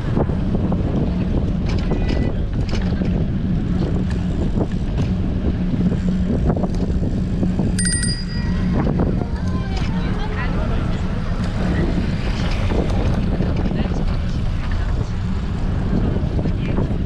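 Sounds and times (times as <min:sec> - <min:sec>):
wind buffeting microphone: 0:00.0 - 0:17.0
high ringing tone: 0:07.8 - 0:09.2.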